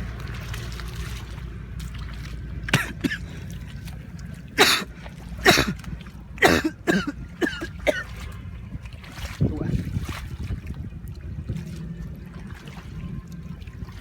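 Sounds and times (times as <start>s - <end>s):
steady low rumble: 0.0s - 14.0s
person coughing: 2.7s - 3.3s, 4.6s - 5.8s, 6.4s - 8.1s.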